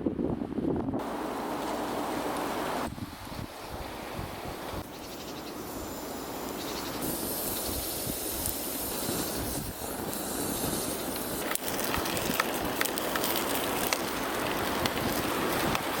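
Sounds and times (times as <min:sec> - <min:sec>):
strong wind blowing: 0:00.0 - 0:04.9, 0:07.1 - 0:12.8
wood fire crackling: 0:01.2 - 0:16.0.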